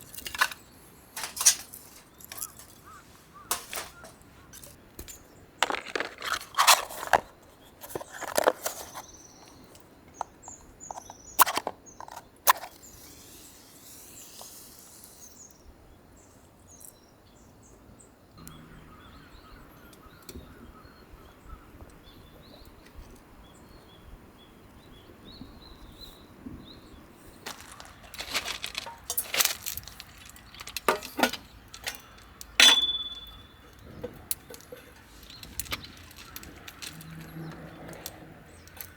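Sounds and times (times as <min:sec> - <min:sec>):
camp gear and firewood clattering: 0:00.0 - 0:13.0, 0:27.3 - 0:38.9
sharp metallic clink: 0:30.8 - 0:33.8.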